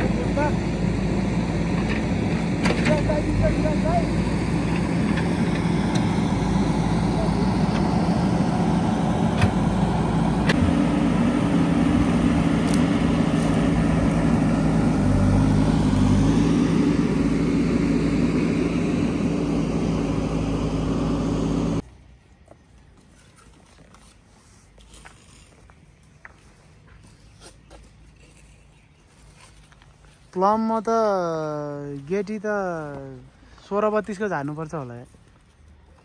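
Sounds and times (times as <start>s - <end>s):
engine running steadily: 0.0s - 21.8s.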